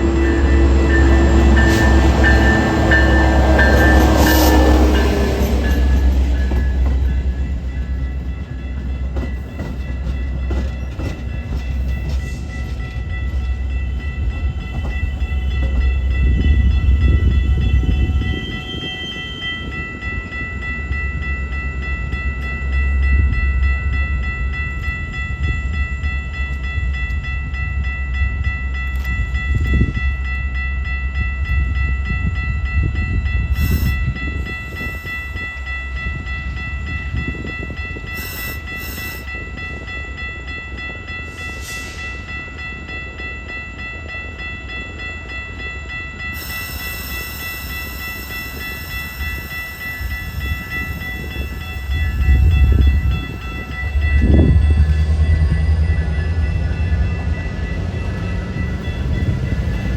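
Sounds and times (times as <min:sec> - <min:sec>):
high ringing tone: 0:00.0 - 0:59.9
train rumbling past: 0:00.0 - 0:59.9.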